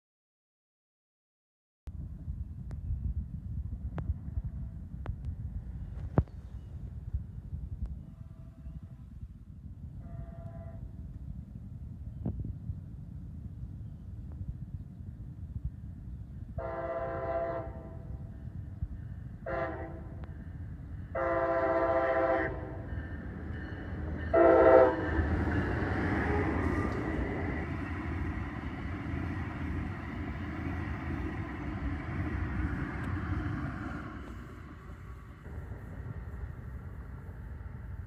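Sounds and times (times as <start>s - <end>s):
train wheel and rail noise: 2.1s - 38.0s
train air horn blasts: 10.0s - 10.8s, 16.6s - 18.2s, 19.4s - 20.3s, 21.1s - 27.0s.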